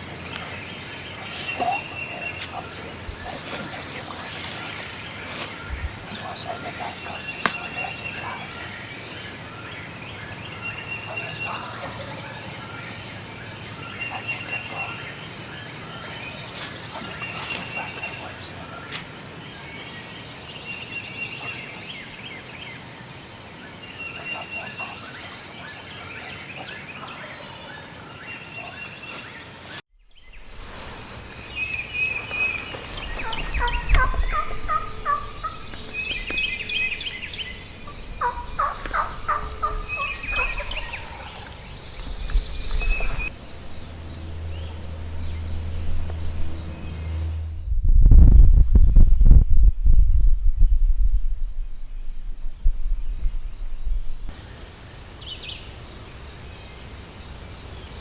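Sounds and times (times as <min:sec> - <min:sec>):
songbirds chirping: 0:00.0 - 0:58.0
turkeys gobbling: 0:00.3 - 0:13.0, 0:13.7 - 0:19.0, 0:30.5 - 0:43.3
low rumble: 0:30.0 - 0:54.4.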